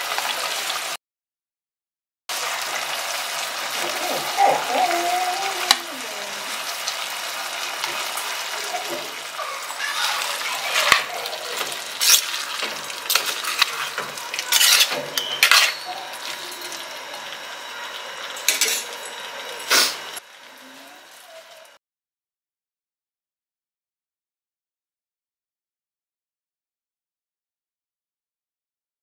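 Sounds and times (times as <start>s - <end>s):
food sizzling in a pot: 0.0s - 1.0s, 2.3s - 21.8s
spoon scraping and knocking pot: 10.8s - 15.9s.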